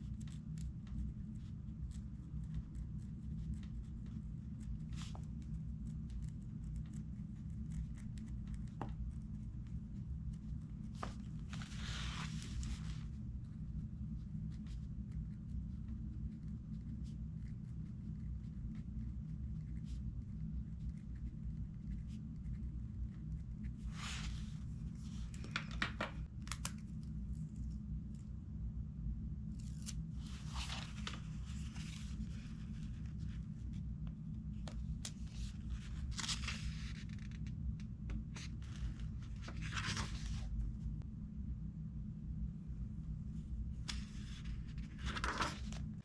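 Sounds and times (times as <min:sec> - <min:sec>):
low hum: 0:00.0 - 0:46.0
paper rustling: 0:03.4 - 0:09.2, 0:10.8 - 0:13.2, 0:23.8 - 0:27.0, 0:29.6 - 0:33.8, 0:34.6 - 0:37.5, 0:38.3 - 0:40.8, 0:43.8 - 0:46.0.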